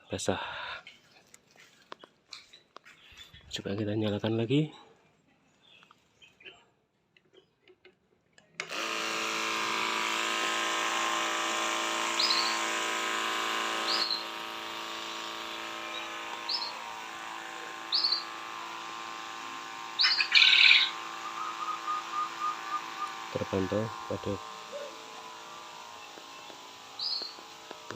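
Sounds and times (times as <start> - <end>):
bird chirps: 5.5 - 6.7, 15.9 - 16.8, 17.9 - 18.3, 20.0 - 23.4, 26.0 - 27.4
water pump humming: 8.6 - 27.9
sprinkler spray hissing: 15.1 - 27.9.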